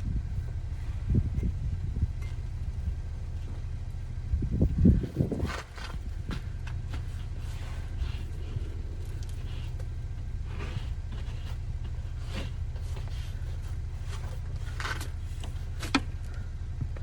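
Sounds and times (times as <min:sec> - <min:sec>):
steady low rumble: 0:00.0 - 0:17.0
scrapes and crunches in snow: 0:04.7 - 0:15.9.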